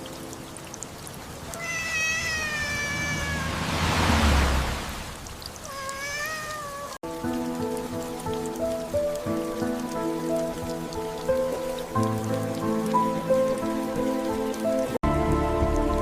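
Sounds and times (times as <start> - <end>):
rain hissing: 0.0 - 16.0
kitten meowing: 1.5 - 3.6, 5.6 - 7.0
low rumble: 3.0 - 5.5.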